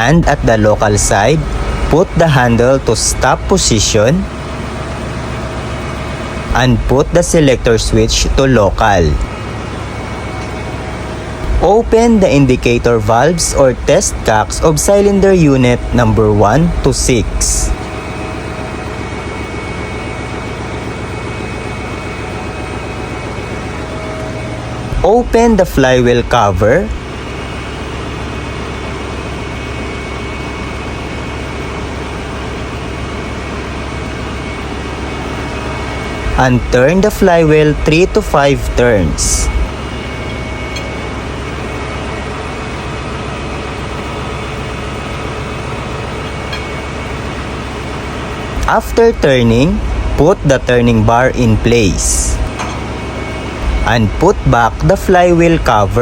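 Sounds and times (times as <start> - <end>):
engine-room machinery drone: 0.0 - 56.0
faint steady tones: 33.8 - 42.7, 44.9 - 56.0.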